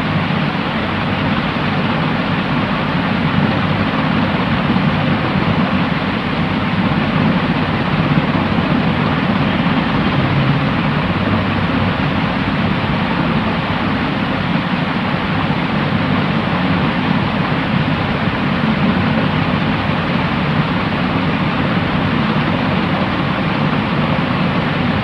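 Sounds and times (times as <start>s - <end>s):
white noise hiss: 0.0s - 25.0s.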